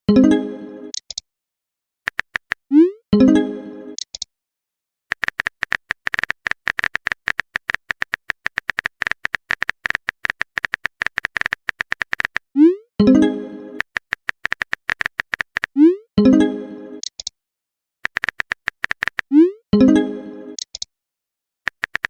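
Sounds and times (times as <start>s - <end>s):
message chime: 0.1s - 0.9s, 13.0s - 13.8s
keyboard typing clicks: 0.9s - 1.2s, 2.1s - 2.8s, 4.0s - 4.3s, 5.1s - 12.4s, 13.8s - 15.7s, 17.0s - 17.3s, 18.0s - 19.4s, 20.6s - 20.9s, 21.7s - 22.0s.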